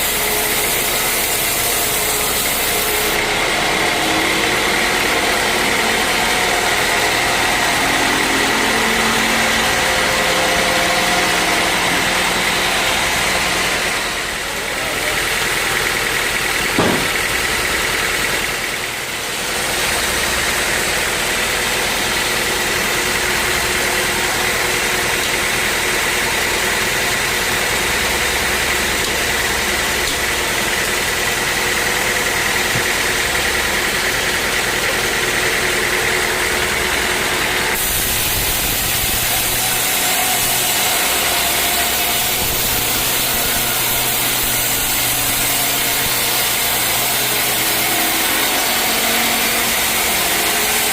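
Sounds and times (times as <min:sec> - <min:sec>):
sawmill machinery whining: 0:00.0 - 0:50.9
knock: 0:16.7 - 0:17.3.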